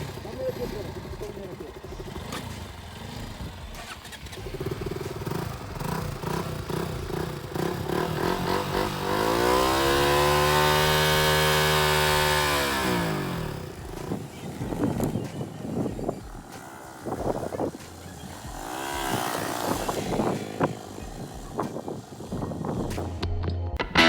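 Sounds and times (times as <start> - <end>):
motorcycle engine revving: 0.0 - 23.1.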